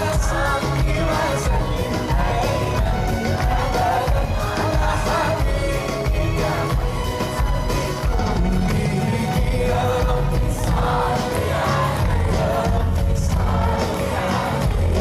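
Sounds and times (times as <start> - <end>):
person singing with band: 0.0 - 15.0.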